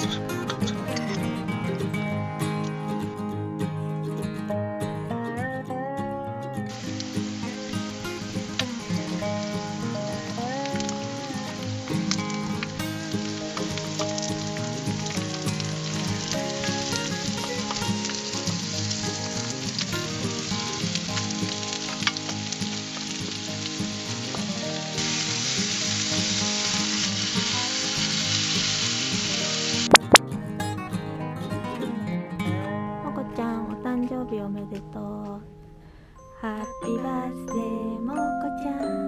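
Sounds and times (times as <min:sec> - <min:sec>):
food sizzling: 0:06.7 - 0:30.2.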